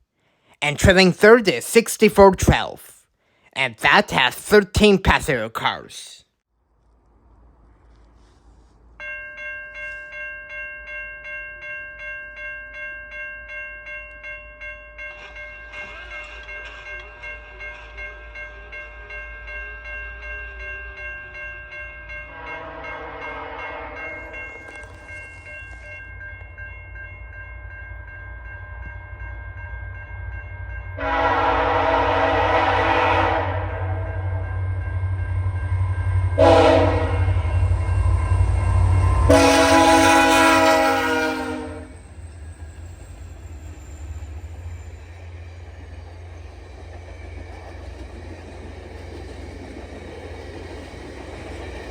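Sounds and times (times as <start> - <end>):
train rumbling: 15.0 - 51.9
locomotive air horn blasts: 22.3 - 24.1, 31.0 - 34.2, 36.4 - 37.4, 39.2 - 42.0.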